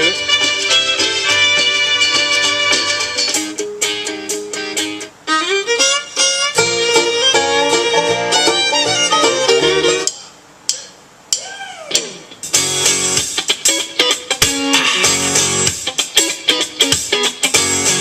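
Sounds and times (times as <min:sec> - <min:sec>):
string music through radio speaker: 0:00.0 - 0:10.3.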